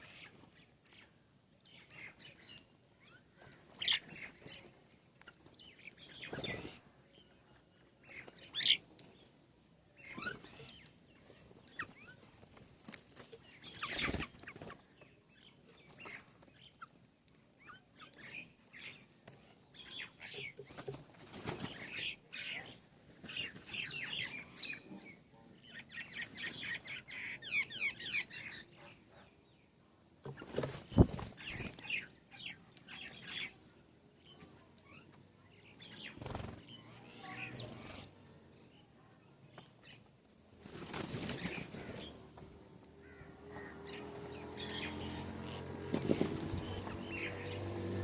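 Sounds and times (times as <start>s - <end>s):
small birds chirping: 0.0s - 48.0s
wing flutter: 11.6s - 14.9s, 20.6s - 22.2s, 30.2s - 32.1s, 35.8s - 38.1s, 40.5s - 48.0s.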